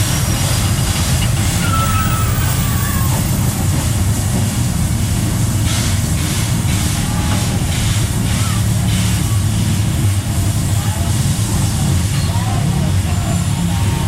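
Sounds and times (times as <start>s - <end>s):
train carriage rumble: 0.0s - 14.0s
faint squeal: 1.6s - 3.4s.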